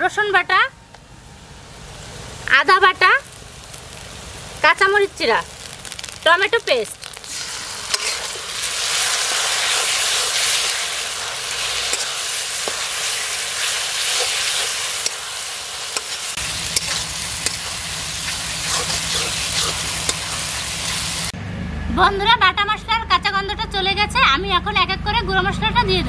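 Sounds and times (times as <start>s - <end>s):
food sizzling in hot oil: 1.4s - 21.4s
metal spatula scraping pan: 7.3s - 8.5s, 9.6s - 15.4s, 16.0s - 20.4s.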